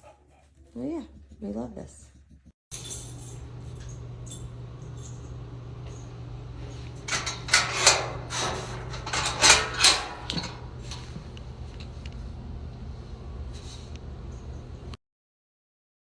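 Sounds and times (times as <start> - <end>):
steady low hum: 2.1 - 15.0
metallic rattles and clatters: 6.6 - 12.1.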